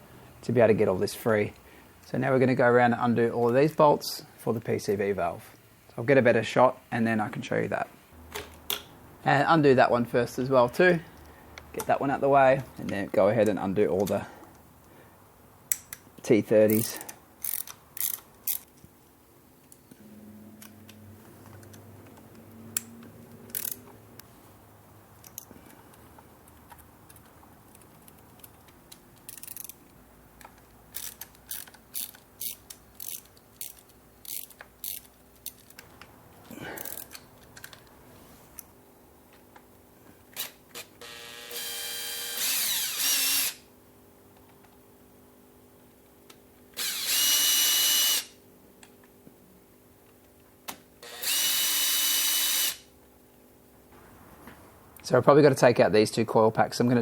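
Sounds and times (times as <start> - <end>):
hand ratchet clicking: 16.7 - 18.7, 22.8 - 23.9, 26.6 - 29.9, 30.5 - 35.8, 36.8 - 37.8
cordless drill whirring: 41.0 - 43.6, 46.8 - 48.4, 51.0 - 52.8.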